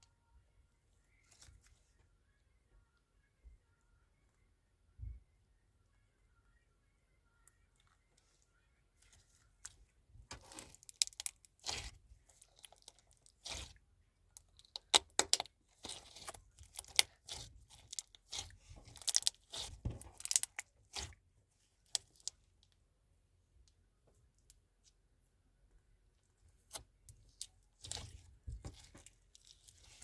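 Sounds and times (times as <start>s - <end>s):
slime crackling and popping: 10.3s - 13.8s, 14.4s - 21.1s.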